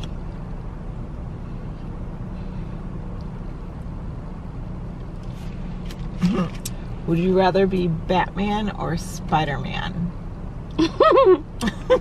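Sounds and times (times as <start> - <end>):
car engine idling hum: 0.0 - 12.0.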